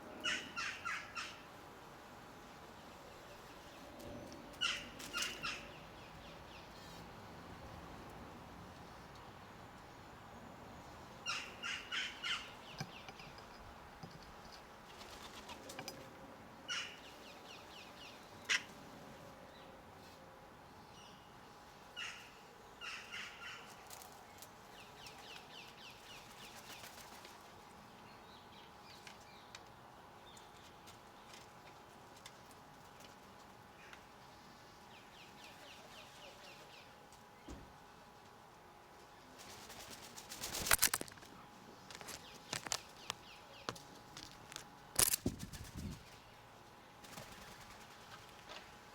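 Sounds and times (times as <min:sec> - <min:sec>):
birds harsh calls: 0:00.1 - 0:01.5, 0:04.1 - 0:06.8, 0:11.1 - 0:13.6
birds chattering rattles: 0:03.0 - 0:06.8, 0:10.7 - 0:18.7, 0:22.0 - 0:29.6, 0:39.4 - 0:46.4.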